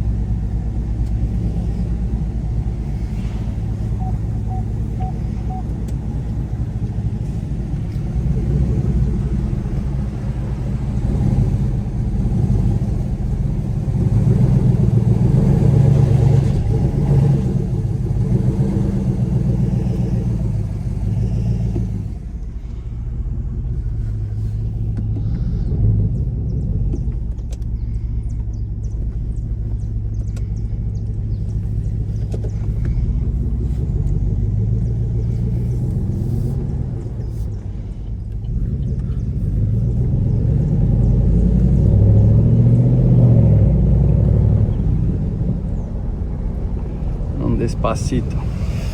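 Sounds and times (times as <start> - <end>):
car engine rumbling: 0.0 - 48.9.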